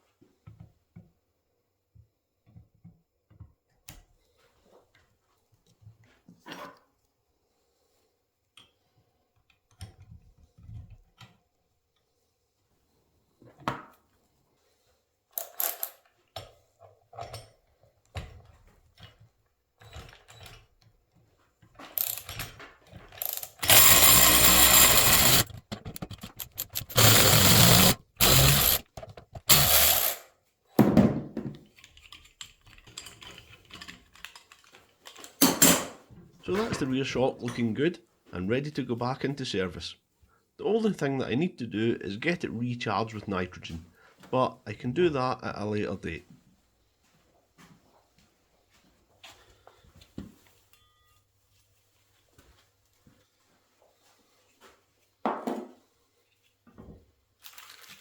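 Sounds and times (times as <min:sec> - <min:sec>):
tools and metal parts knocking: 0:22.0 - 0:30.1
loud noisy tool bursts: 0:23.2 - 0:28.8, 0:29.4 - 0:30.2.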